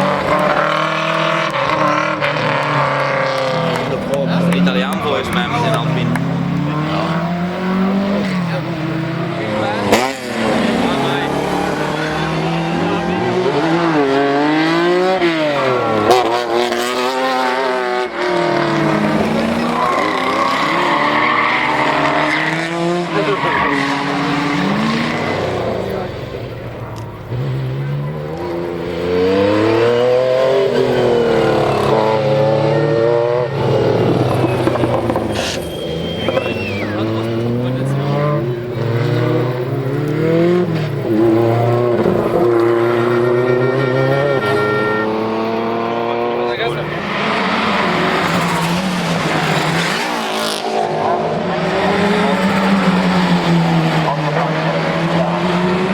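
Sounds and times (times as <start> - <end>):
rally car engine revving: 0.0 - 55.9
high squealing tone: 33.6 - 37.6, 40.3 - 50.2.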